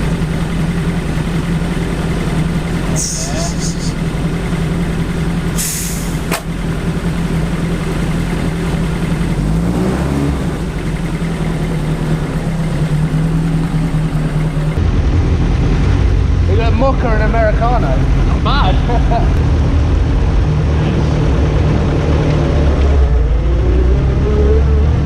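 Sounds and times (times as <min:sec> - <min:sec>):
car engine idling: 0:00.0 - 0:23.4.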